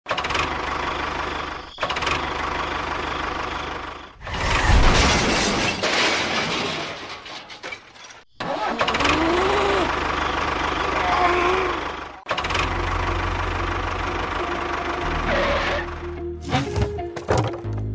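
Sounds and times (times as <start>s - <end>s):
small engine running: 8.7s - 16.1s.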